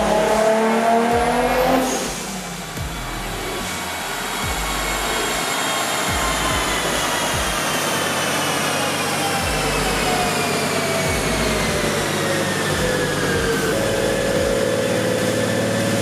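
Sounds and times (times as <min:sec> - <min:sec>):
low thumps: 0:00.0 - 0:05.4
dyno rollers whining: 0:00.0 - 0:16.0.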